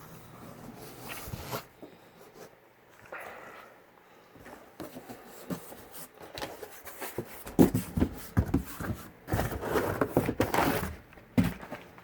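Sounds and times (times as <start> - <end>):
cardboard box rustling: 4.8 - 12.0.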